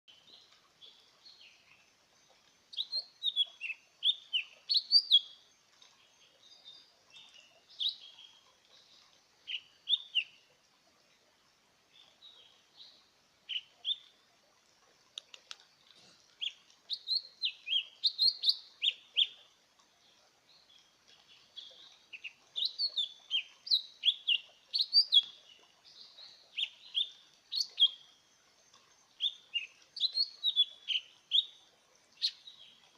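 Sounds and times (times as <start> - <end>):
bird singing whistled notes: 2.7 - 5.4, 16.4 - 19.4, 21.6 - 28.0, 29.2 - 31.6.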